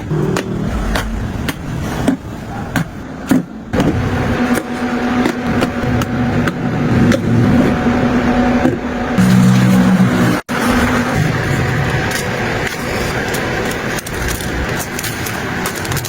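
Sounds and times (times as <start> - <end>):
held low notes: 0.2 - 2.7.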